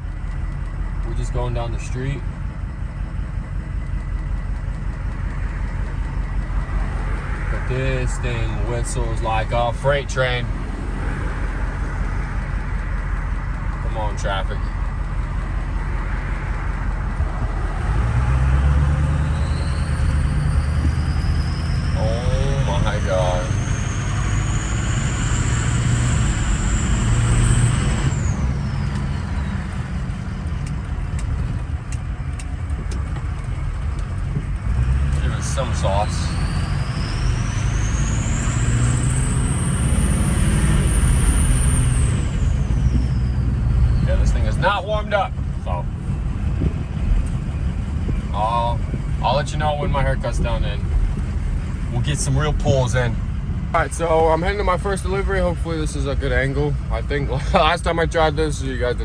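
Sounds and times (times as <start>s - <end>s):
diesel engine pulling away: 0.0s - 59.0s
turbo whistle: 19.1s - 29.7s.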